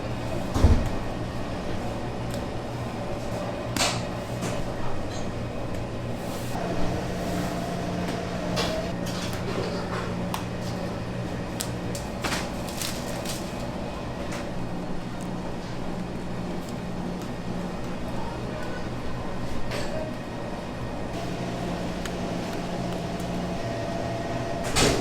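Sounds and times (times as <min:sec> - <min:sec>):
machine hum: 0:05.3 - 0:14.9, 0:20.2 - 0:25.0.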